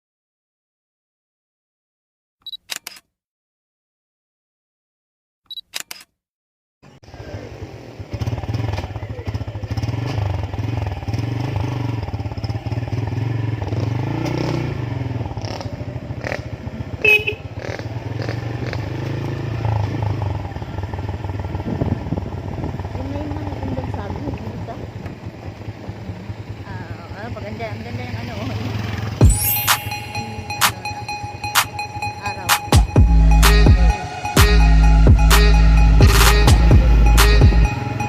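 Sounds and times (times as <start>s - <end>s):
motorcycle engine running: 7.0s - 38.0s
wind noise: 21.4s - 23.2s.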